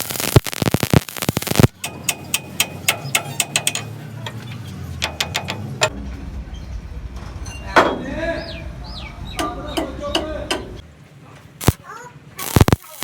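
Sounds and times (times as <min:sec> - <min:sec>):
hand tools tapping on steel: 0:01.7 - 0:06.0, 0:09.4 - 0:10.9.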